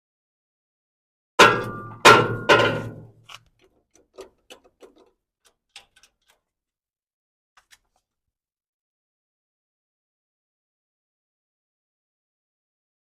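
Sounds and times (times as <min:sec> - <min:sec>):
loud ringing knocks: 0:01.4 - 0:03.1
faint clicks and taps: 0:03.3 - 0:06.5.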